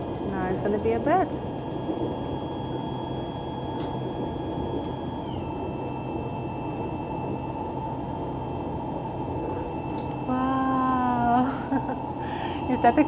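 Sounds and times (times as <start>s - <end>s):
faint electric whine: 0.0s - 13.0s
low hum: 0.0s - 13.0s
train carriage running noise: 3.7s - 5.4s.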